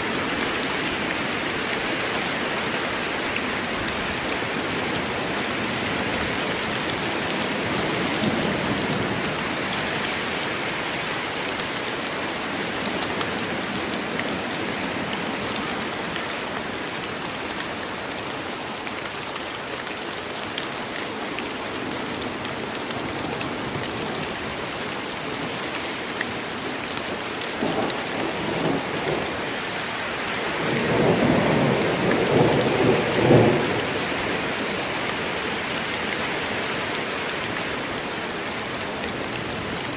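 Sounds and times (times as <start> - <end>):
heavy rain: 0.0 - 39.9
thunder rumbling: 30.6 - 34.0.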